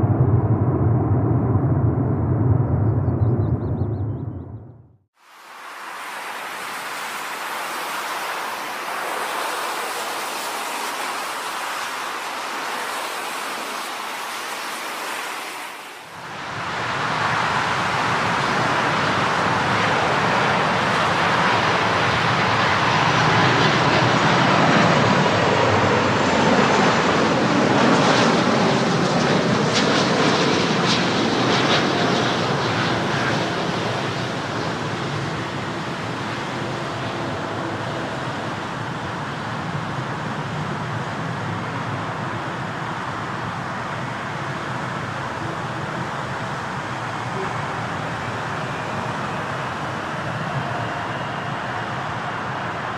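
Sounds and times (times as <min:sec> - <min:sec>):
jet airliner engine: 0:00.0 - 0:52.9.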